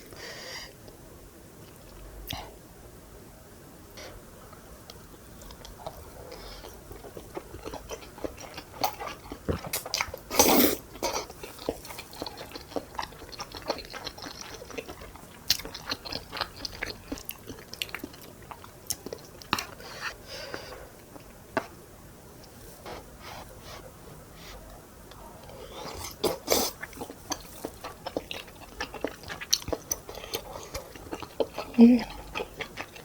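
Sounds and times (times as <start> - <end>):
food crunching: 4.9 - 19.9, 25.1 - 33.0
close chewing and biting: 5.4 - 19.8, 25.1 - 33.0.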